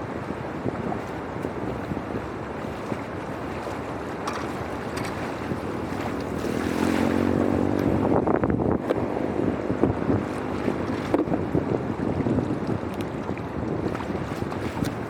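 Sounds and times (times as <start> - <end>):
sharp knocks or splashes: 2.8 - 8.0, 12.8 - 15.0
water rushing through drain: 3.6 - 8.0.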